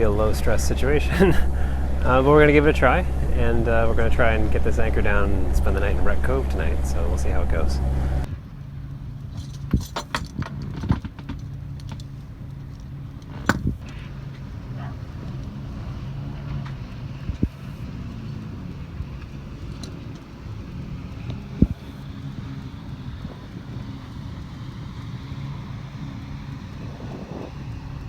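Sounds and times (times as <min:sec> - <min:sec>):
boat engine running: 0:00.0 - 0:28.0
sharp clicks and knocks: 0:09.3 - 0:14.4.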